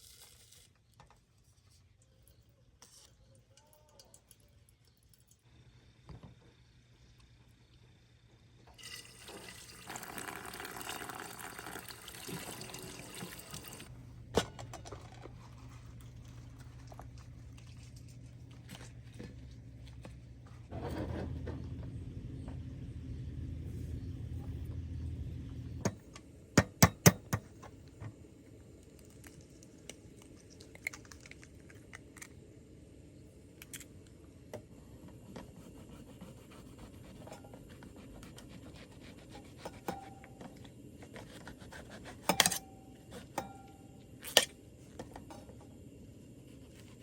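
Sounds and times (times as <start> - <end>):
low hum: 13.8 - 26.6.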